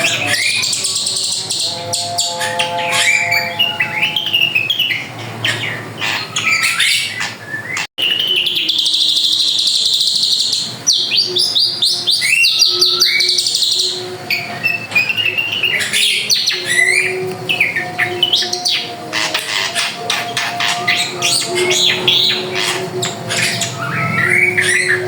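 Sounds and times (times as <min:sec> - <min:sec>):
bird singing chirps and trills: 0:00.0 - 0:25.0.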